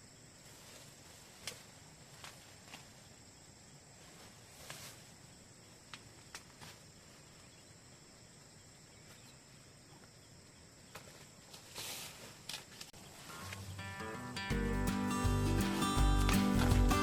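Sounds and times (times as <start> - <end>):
insects trilling: 0.0 - 13.8
short rustle: 0.4 - 3.1, 4.0 - 5.2, 11.0 - 13.7.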